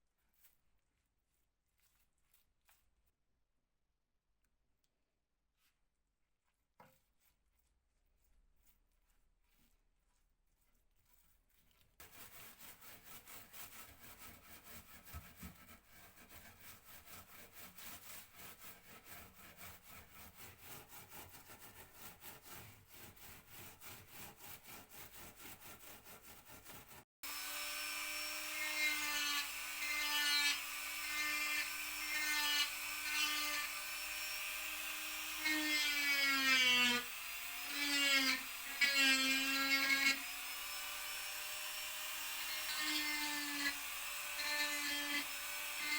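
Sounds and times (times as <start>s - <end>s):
scratching on wood: 6.8s - 27.0s.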